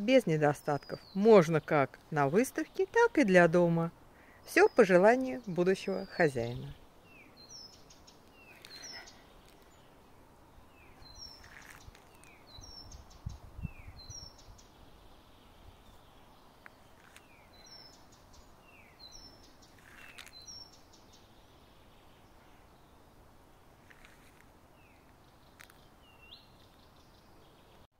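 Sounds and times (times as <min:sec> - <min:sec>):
songbird repeating high phrase: 0:04.5 - 0:06.8.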